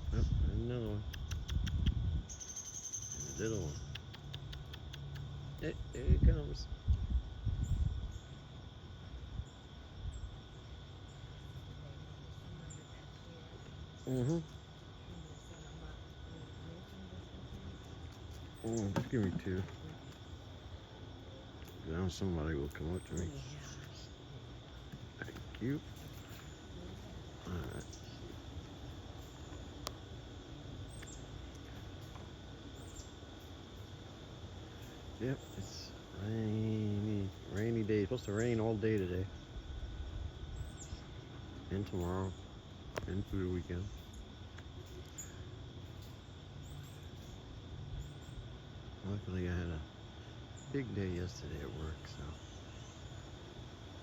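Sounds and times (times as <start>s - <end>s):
insect chorus trilling: 0.0s - 54.0s
sharp click: 1.1s - 2.0s.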